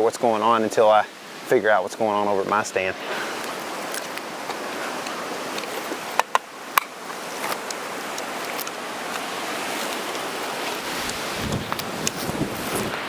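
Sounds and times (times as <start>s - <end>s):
wind rushing on microphone: 7.2s - 13.0s.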